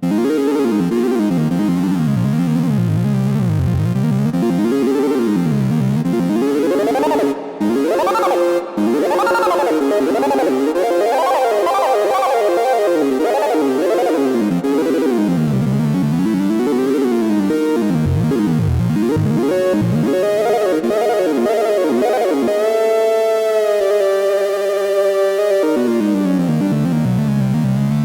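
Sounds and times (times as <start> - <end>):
synthesizer pitch sweeping: 6.5 - 15.0.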